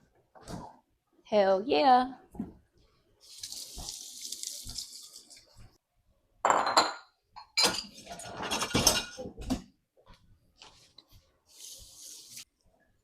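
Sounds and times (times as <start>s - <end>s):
metal utensils clinking on dishes: 6.8s - 9.4s.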